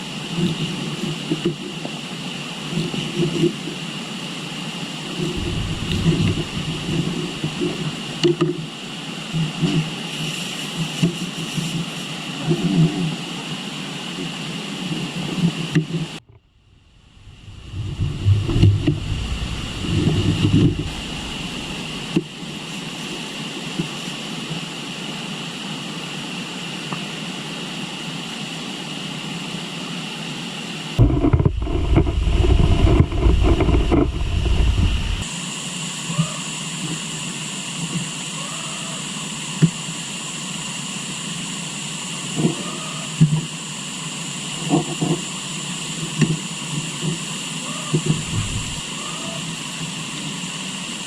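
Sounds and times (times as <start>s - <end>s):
flowing river: 5.1s - 9.6s, 16.2s - 23.0s, 31.0s - 35.2s
deep rumble: 5.2s - 9.0s, 16.2s - 22.6s, 31.0s - 35.2s, 48.1s - 48.8s.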